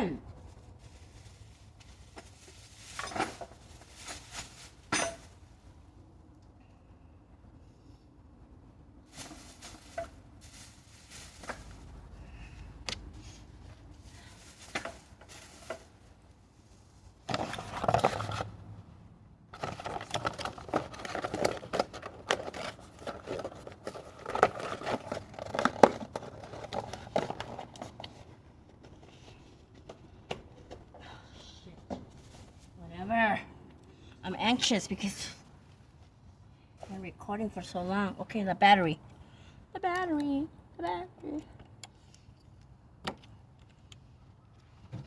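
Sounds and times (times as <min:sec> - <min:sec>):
rustling: 0:00.3 - 0:05.9, 0:09.0 - 0:18.8, 0:31.9 - 0:33.0.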